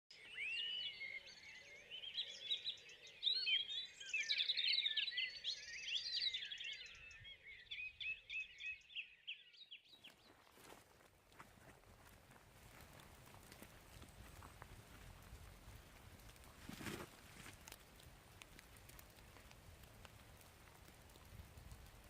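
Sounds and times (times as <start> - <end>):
songbirds singing: 0.1 - 11.0
rustling noise: 10.4 - 18.0.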